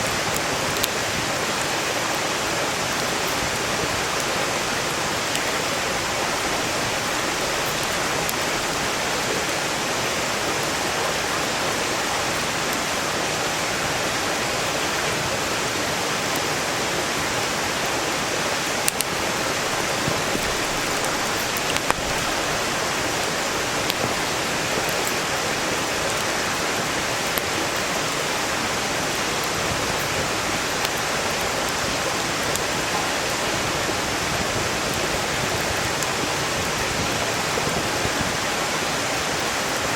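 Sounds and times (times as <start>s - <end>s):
mountain stream rushing: 0.0s - 39.9s
campfire crackling pops: 18.7s - 28.3s.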